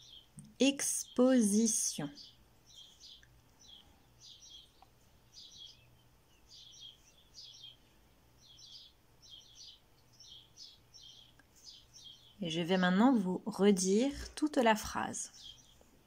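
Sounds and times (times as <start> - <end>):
bird chirping faintly: 0.0 - 16.0.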